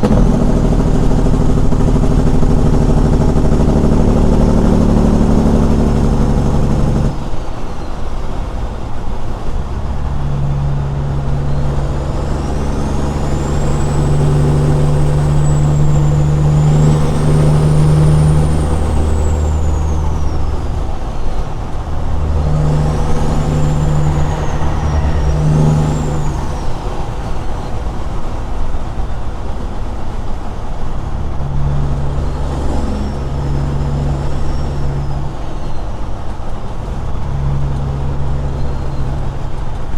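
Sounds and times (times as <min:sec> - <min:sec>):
diesel truck engine: 0:00.0 - 0:39.9
faint high whistle: 0:11.5 - 0:28.3.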